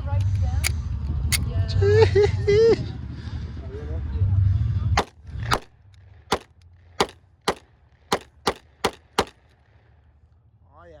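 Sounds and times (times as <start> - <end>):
pistol shots: 6.3 - 9.5.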